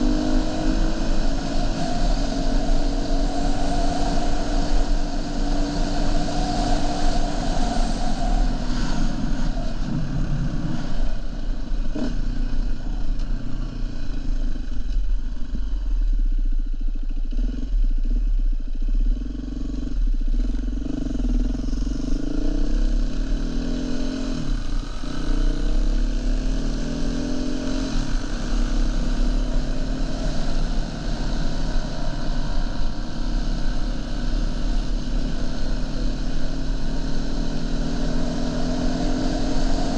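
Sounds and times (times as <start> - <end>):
dirt bike engine revving: 0.0 - 11.1
heavy low rumble: 2.5 - 17.0.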